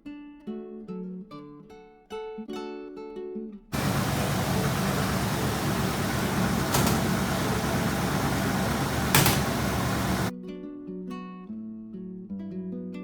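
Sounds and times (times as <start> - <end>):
car engine rumbling: 3.8 - 10.3
short sharp clicks: 3.8 - 10.3.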